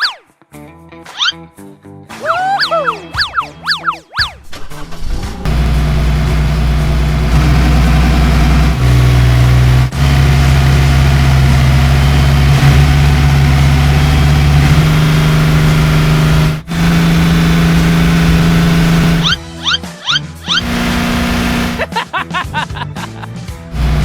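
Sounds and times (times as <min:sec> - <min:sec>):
cartoon vehicle engine hum: 0:05.5 - 0:19.4, 0:20.5 - 0:22.0, 0:23.7 - 0:24.0.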